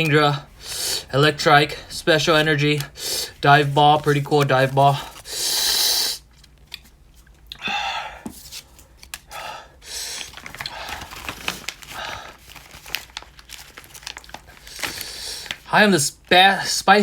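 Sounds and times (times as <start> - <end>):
man panting and blowing: 0.5 - 2.0, 2.9 - 3.4, 5.0 - 6.3, 7.6 - 8.3, 9.3 - 11.1.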